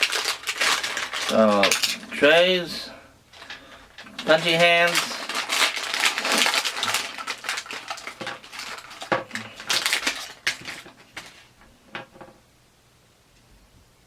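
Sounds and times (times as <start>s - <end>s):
plastic trays crinkling and clicking: 0.0s - 2.0s, 3.3s - 12.4s.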